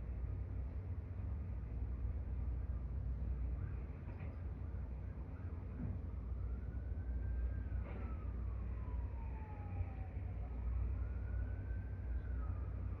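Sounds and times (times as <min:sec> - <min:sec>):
siren wailing: 0:06.2 - 0:13.0.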